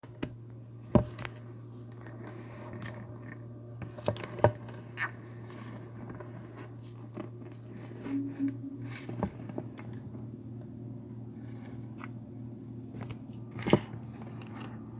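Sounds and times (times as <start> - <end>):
short pitched sound: 8.1 - 9.3
steady low hum: 8.1 - 9.4.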